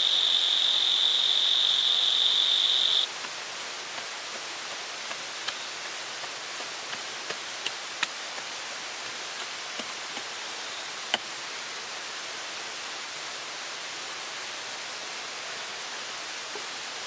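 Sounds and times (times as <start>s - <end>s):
rain falling on foliage: 0.0s - 17.0s.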